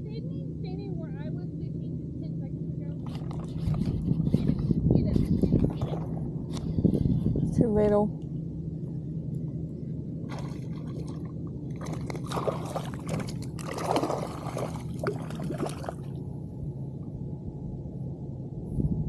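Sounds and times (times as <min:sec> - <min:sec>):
steady low hum: 0:00.0 - 0:19.0
water splashing and sloshing: 0:03.0 - 0:04.6, 0:10.2 - 0:16.2.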